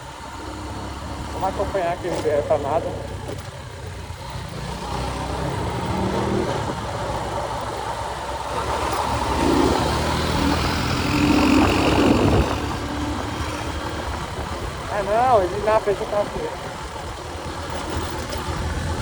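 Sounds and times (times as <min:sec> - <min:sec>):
motorcycle engine running: 0:00.0 - 0:19.0
wind noise on microphone: 0:09.0 - 0:19.0.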